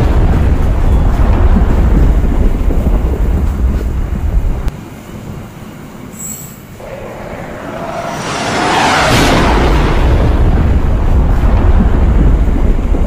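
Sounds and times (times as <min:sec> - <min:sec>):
train cars rolling on rails: 0:00.0 - 0:13.0
high wheel squeal: 0:06.2 - 0:10.2
rushing noise: 0:06.7 - 0:13.0.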